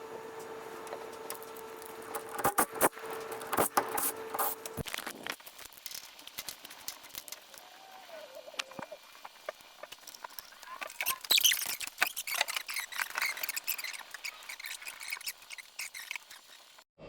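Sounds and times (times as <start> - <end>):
wavering squeak: 10.8 - 16.8.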